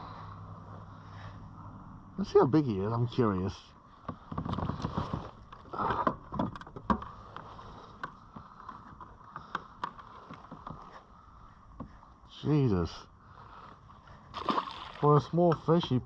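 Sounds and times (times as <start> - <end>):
water splashing and sloshing: 14.1 - 15.8.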